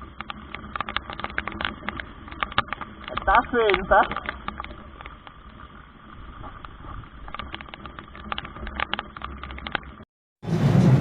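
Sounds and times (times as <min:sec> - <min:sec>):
raindrops tapping: 0:00.0 - 0:10.0.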